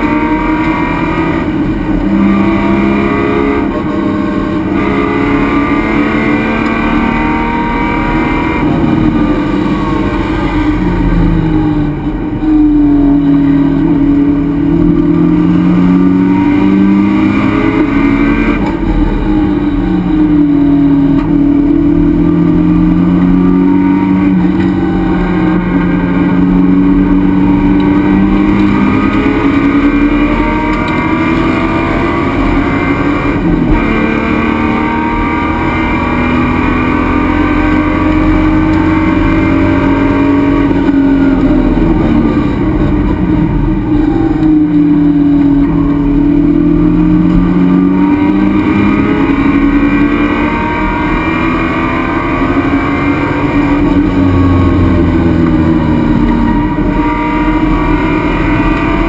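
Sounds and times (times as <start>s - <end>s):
race car engine from cockpit: 0.0s - 59.0s.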